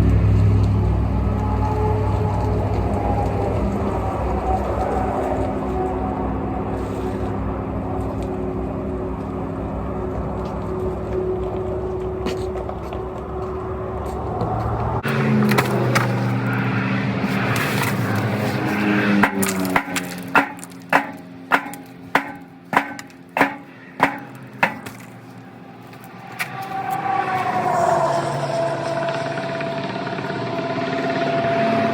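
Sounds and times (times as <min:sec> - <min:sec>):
hammer blows on metal exhaust: 0:19.1 - 0:25.3.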